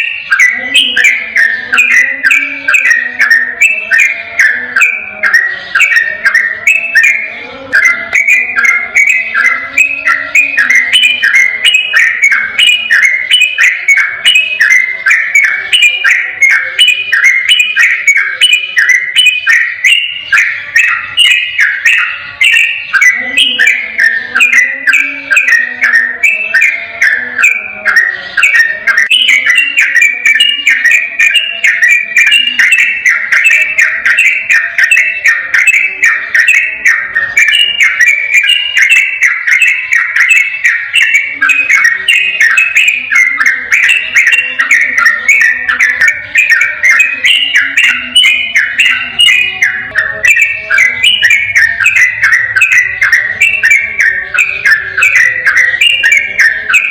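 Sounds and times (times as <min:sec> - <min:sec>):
bulbul singing whistled notes: 0:00.0 - 0:56.9.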